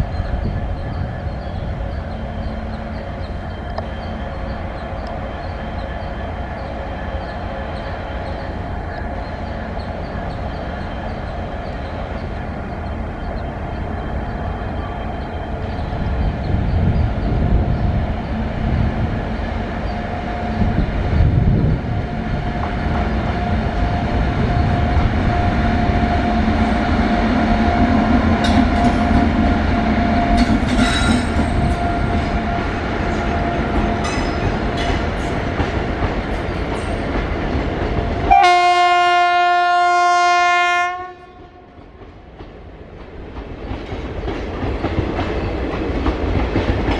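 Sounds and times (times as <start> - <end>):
steady train whine: 0.0 - 46.9
train wheels rumbling on track: 0.0 - 46.9
locomotive horn blast: 38.3 - 41.7.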